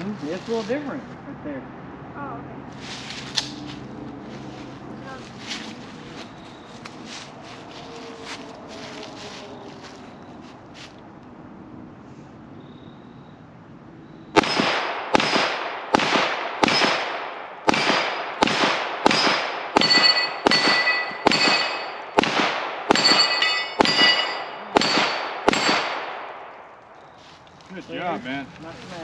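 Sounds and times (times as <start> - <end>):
pistol shots echoing: 14.4 - 26.5
metal targets ringing: 19.1 - 22.3, 22.9 - 26.2.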